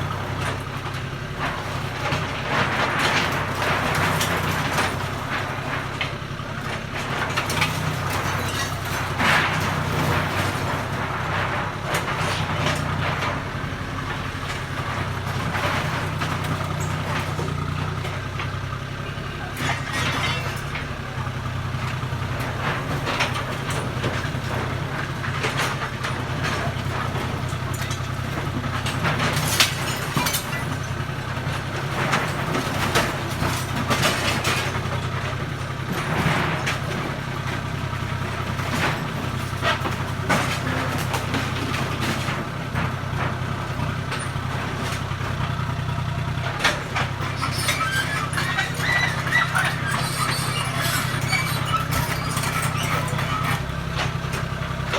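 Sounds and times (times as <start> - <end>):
diesel engine running: 0.0 - 54.9
machine knocks and clatter: 0.3 - 6.2, 21.9 - 54.9.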